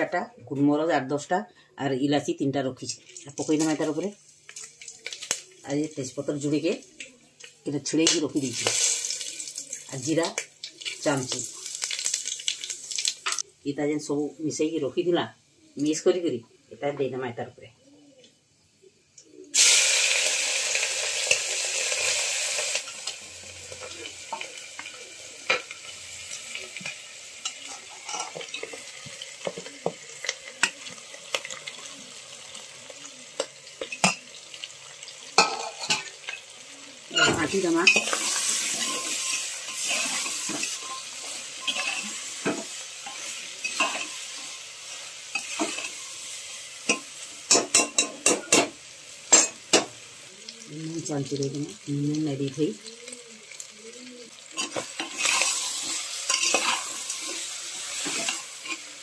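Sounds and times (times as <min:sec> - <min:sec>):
food sizzling in hot oil: 0:02.9 - 0:13.6, 0:19.2 - 0:59.0
metal spatula scraping pot: 0:26.8 - 0:29.8, 0:37.1 - 0:44.6, 0:45.3 - 0:46.3, 0:54.5 - 0:59.0.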